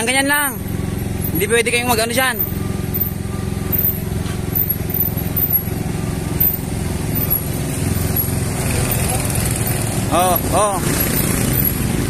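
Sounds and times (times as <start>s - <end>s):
motorcycle engines droning: 0.0s - 12.0s
road noise: 0.0s - 12.0s.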